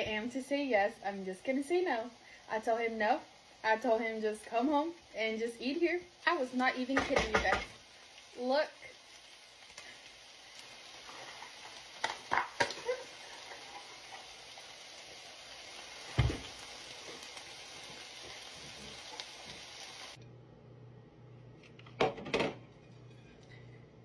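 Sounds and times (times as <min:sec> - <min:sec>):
chicken sizzling in a pan: 0:00.0 - 0:20.2
low hum: 0:20.2 - 0:21.9.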